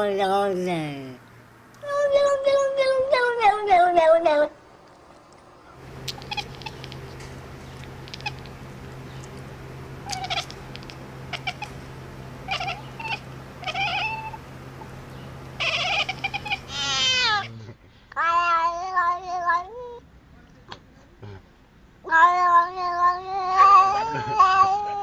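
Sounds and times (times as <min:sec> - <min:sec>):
steady low hum: 0:00.0 - 0:18.2
cat meowing and chirping: 0:06.1 - 0:07.1, 0:08.1 - 0:08.5, 0:10.0 - 0:11.7, 0:12.5 - 0:14.4, 0:15.6 - 0:17.5.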